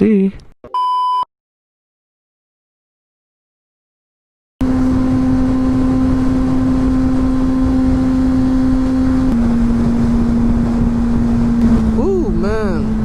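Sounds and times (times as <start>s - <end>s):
motorcycle engine cruising: 4.6s - 13.0s
wind rumbling on microphone: 4.6s - 13.0s.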